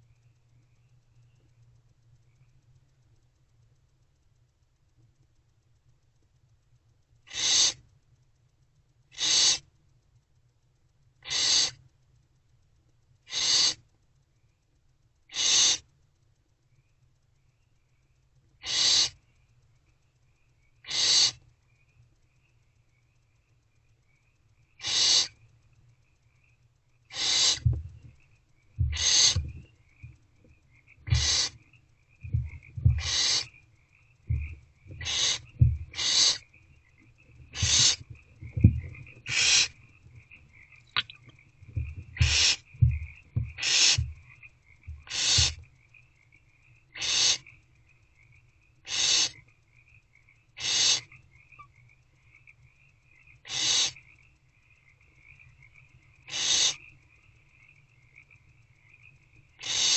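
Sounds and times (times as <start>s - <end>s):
owlets rasping hissing calls: 7.3s - 7.8s, 9.1s - 9.7s, 11.2s - 11.8s, 13.3s - 13.8s, 15.3s - 15.9s, 18.6s - 19.2s, 20.8s - 21.4s, 24.8s - 25.4s, 27.1s - 27.8s, 28.8s - 29.6s, 31.1s - 31.6s, 32.3s - 33.6s, 34.3s - 36.5s, 37.5s - 39.8s, 40.9s - 44.2s, 45.0s - 45.6s, 47.0s - 47.4s, 48.8s - 49.4s, 50.6s - 51.1s, 53.4s - 54.0s, 56.3s - 56.8s, 59.6s - 59.9s
soft low rustling: 27.5s - 31.6s, 32.2s - 33.5s, 34.2s - 45.6s.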